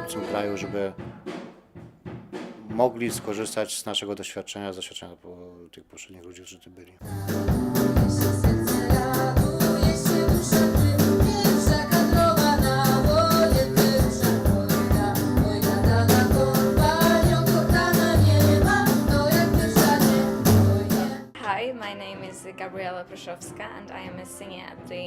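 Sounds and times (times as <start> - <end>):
drum kit: 0.0 - 3.9, 7.0 - 21.7
bass: 7.0 - 21.4
guitar: 7.0 - 25.0.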